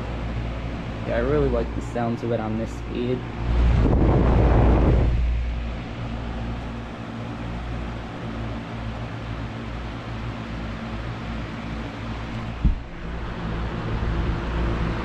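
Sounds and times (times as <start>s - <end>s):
box fan motor hum: 0.0s - 15.0s
fan scraping noise: 0.0s - 15.0s
rush of moving air: 3.2s - 6.6s.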